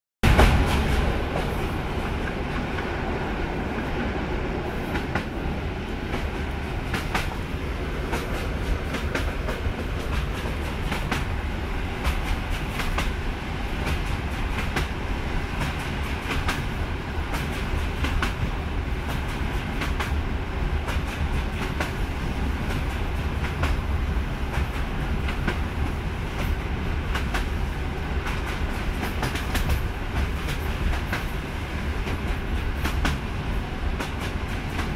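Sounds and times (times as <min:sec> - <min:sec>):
train running rumble: 0:00.2 - 0:34.9
wheels clicking over rail joints: 0:28.2 - 0:31.4.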